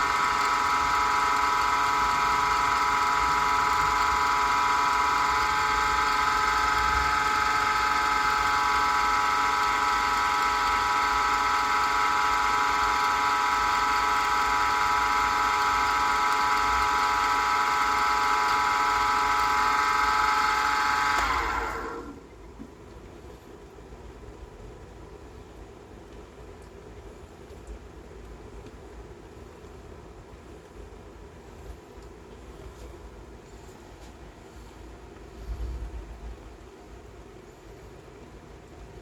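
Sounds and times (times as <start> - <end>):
lathe motor whining: 0.0 - 22.2.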